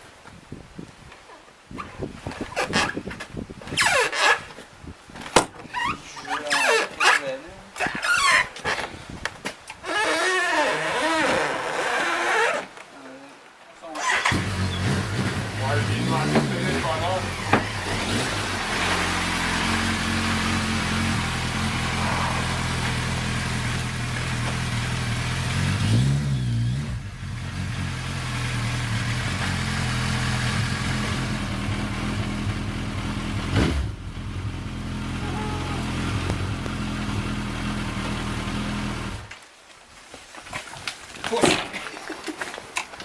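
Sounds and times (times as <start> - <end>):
car engine idling and revving: 14.3 - 39.3.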